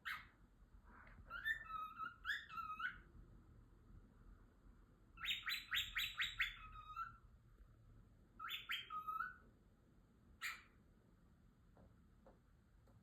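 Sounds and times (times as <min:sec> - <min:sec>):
cockatiel chirping: 0:00.0 - 0:00.4, 0:01.2 - 0:03.1, 0:05.2 - 0:07.2, 0:08.4 - 0:09.4, 0:10.4 - 0:10.8.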